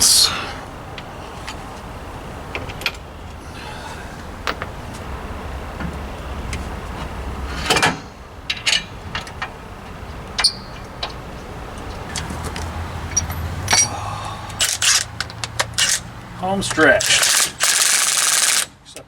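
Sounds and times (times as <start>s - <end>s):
metal tools and bolts clinking: 7.7s - 9.5s, 10.4s - 11.2s, 12.1s - 14.0s, 14.6s - 18.7s.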